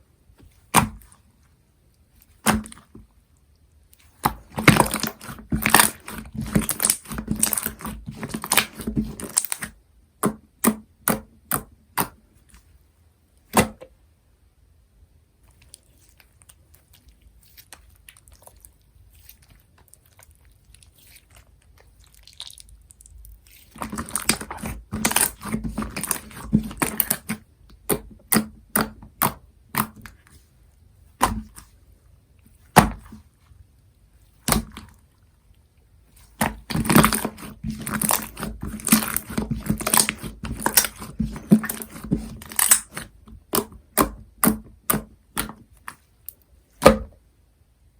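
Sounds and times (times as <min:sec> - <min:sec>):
slime crackling and popping: 0:04.0 - 0:09.8, 0:15.6 - 0:30.1, 0:36.2 - 0:45.9.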